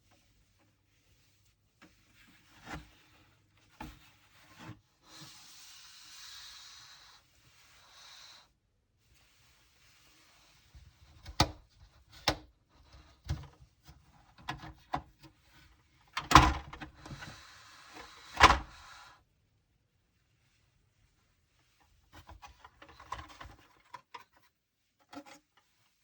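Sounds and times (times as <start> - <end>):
soft rustling of packaging: 0.0 - 5.1.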